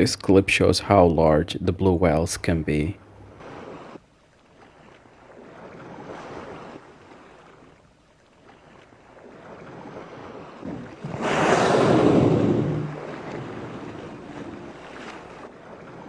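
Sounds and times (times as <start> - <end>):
waves washing: 8.7 - 16.0
wind buffeting microphone: 10.5 - 15.0.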